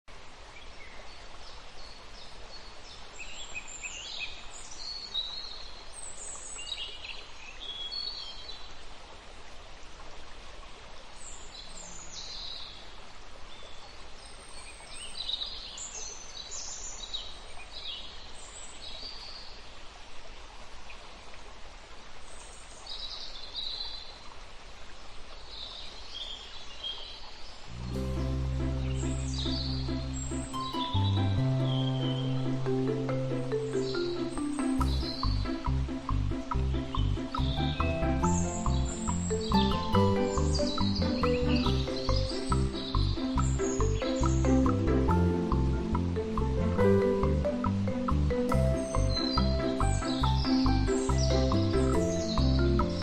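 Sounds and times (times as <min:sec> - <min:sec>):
outdoor background hiss: 0:00.0 - 0:53.0
small birds chirping: 0:11.0 - 0:19.6, 0:25.3 - 0:53.0.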